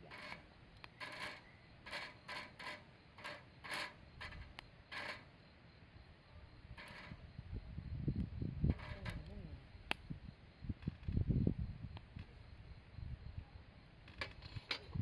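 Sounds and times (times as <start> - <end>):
campfire crackling: 9.6 - 11.1.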